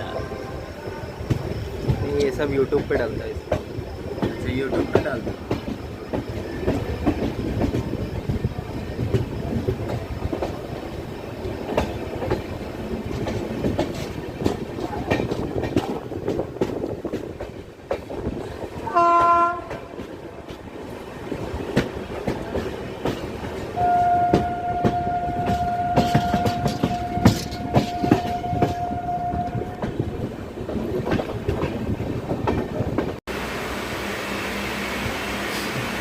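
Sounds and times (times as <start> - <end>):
train wheels clicking over rail joints: 1.2 - 33.2
train horn: 18.8 - 19.9, 23.8 - 29.9.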